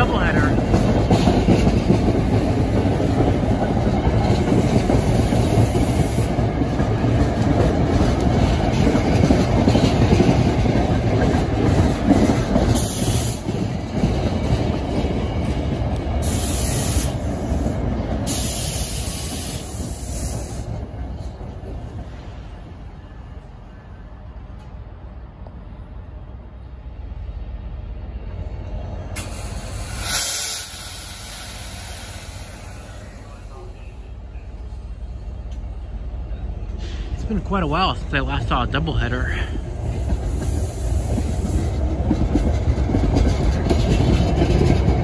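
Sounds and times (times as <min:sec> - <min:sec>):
train wheels rumbling on rails: 0:00.0 - 0:45.0.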